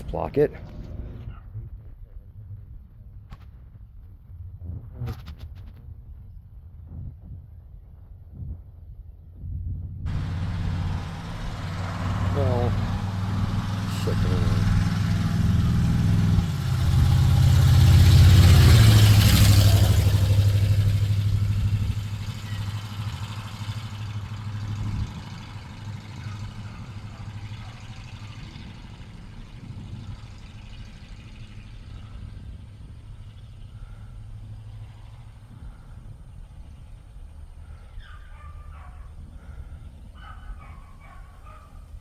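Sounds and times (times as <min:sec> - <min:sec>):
vehicle engine humming: 0:10.1 - 0:42.0.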